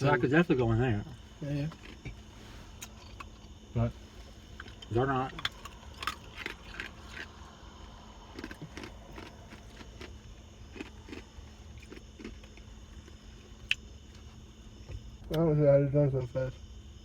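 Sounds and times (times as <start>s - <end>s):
person chewing a sandwich: 1.6s - 3.6s, 4.2s - 14.3s.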